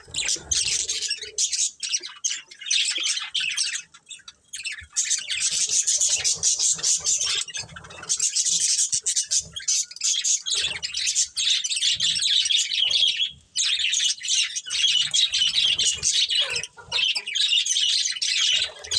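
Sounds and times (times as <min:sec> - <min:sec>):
budgerigars chattering and chirping: 0:00.0 - 0:18.9.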